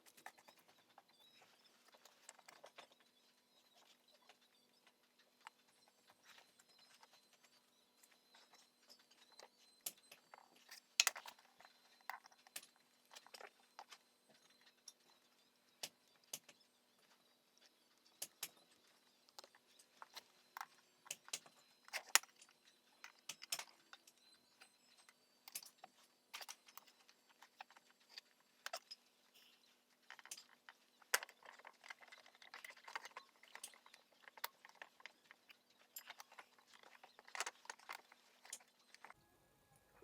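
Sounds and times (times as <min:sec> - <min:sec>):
faint steady hum: 0:00.0 - 0:40.0
tools clicking and tapping: 0:08.0 - 0:15.2, 0:15.8 - 0:39.2.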